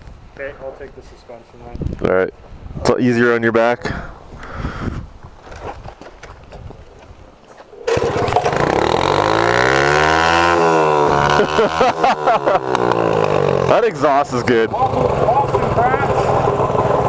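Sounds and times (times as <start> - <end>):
small engine starting and revving: 7.8 - 17.0.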